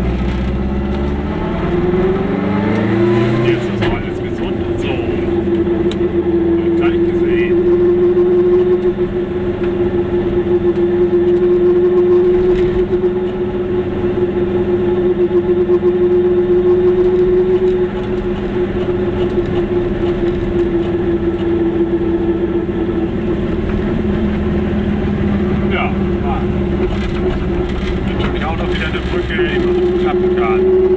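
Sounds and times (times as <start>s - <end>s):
road noise: 0.0s - 30.9s
small two-stroke engine droning: 0.0s - 30.9s.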